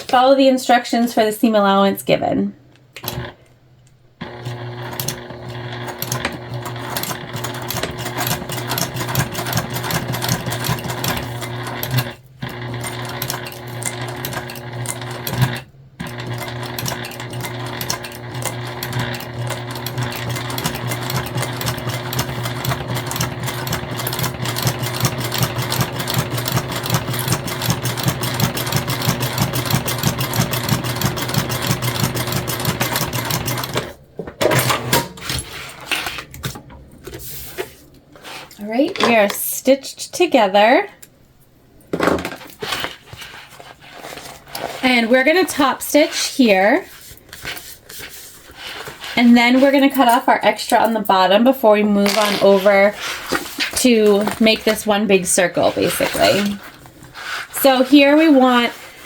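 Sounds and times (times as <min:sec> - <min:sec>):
sewing machine running: 0:03.0 - 0:03.4, 0:04.2 - 0:34.0, 0:52.0 - 0:55.0, 0:55.6 - 0:58.9.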